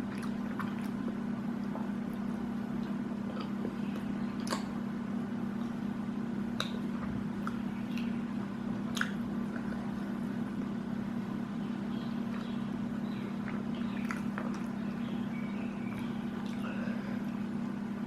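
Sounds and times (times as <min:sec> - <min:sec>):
chewing and biting food: 0:00.0 - 0:04.8, 0:06.5 - 0:08.2, 0:08.8 - 0:10.2, 0:12.2 - 0:17.4
steady low hum: 0:00.0 - 0:18.0.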